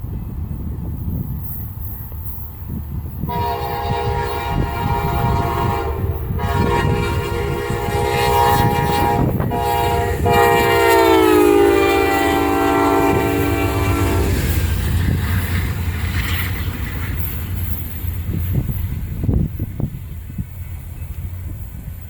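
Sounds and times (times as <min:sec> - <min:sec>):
train rumble and rail clatter: 0:00.0 - 0:22.0
locomotive air horn blasts: 0:03.3 - 0:14.6.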